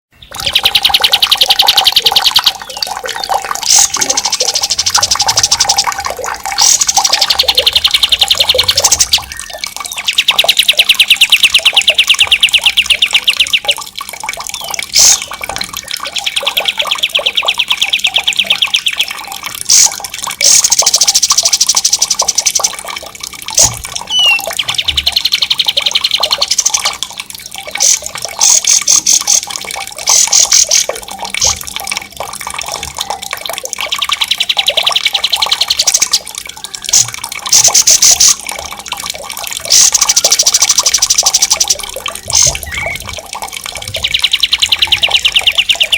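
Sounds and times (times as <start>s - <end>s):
running water: 0.1s - 45.9s
songbird fast rolling trills: 24.1s - 26.4s.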